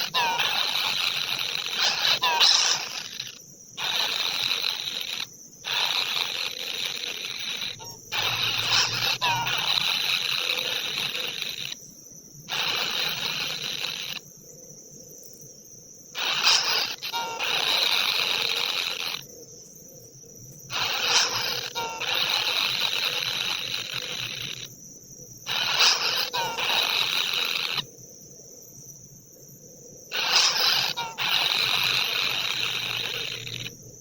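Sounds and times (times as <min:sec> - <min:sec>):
bird falling squeal call: 0:00.0 - 0:03.4, 0:30.1 - 0:33.6
high-pitched insect buzzing: 0:00.0 - 0:14.3, 0:16.0 - 0:19.4, 0:20.6 - 0:28.2, 0:30.0 - 0:34.0.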